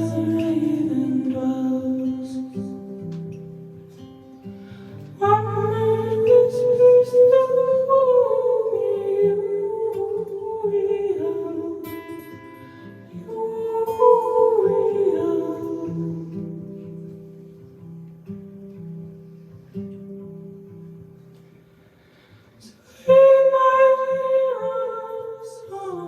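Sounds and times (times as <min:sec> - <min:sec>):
person singing: 0:00.0 - 0:03.3, 0:05.1 - 0:17.0, 0:22.6 - 0:26.0
plucked guitar: 0:00.0 - 0:26.0.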